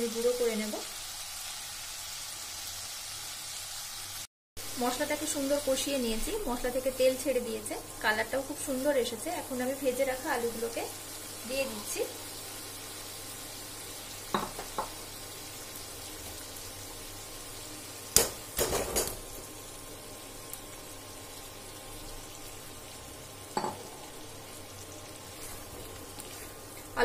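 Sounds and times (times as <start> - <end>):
spices sizzling in oil: 0.0 - 27.0
potatoes knocking into pan: 18.1 - 19.3.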